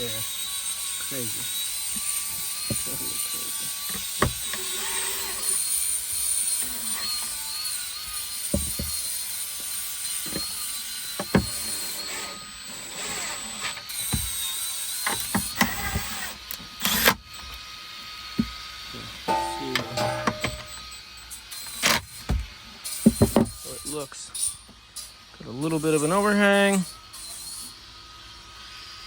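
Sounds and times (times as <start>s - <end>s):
faint wavering whine: 19.3s - 20.8s
hand tools clicking and knocking: 19.3s - 20.8s.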